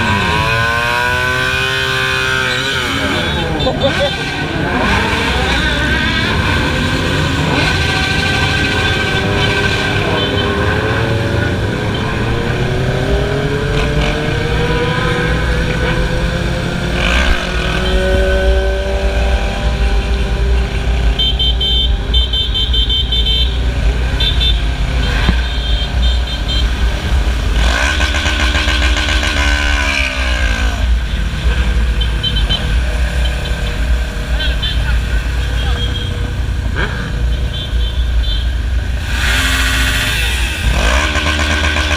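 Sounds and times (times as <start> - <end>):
motorcycle engines revving: 0.0 - 41.9.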